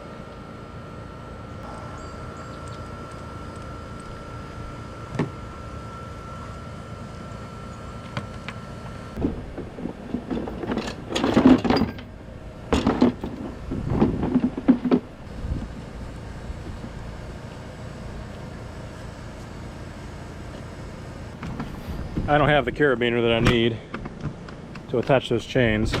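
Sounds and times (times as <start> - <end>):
metal parts clanking and rattling: 9.5 - 15.2.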